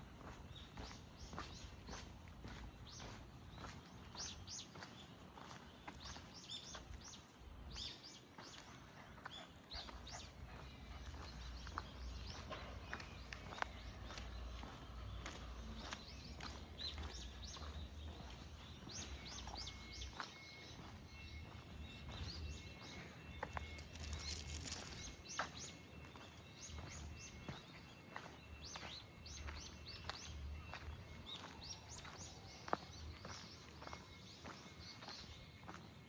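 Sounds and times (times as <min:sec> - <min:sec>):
small birds chirping: 0:00.0 - 0:35.8
outdoor background noise: 0:00.0 - 0:36.0.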